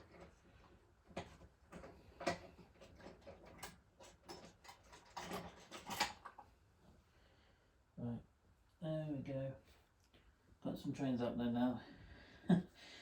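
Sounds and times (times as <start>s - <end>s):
plastic model trains clicking and knocking: 1.1s - 6.4s.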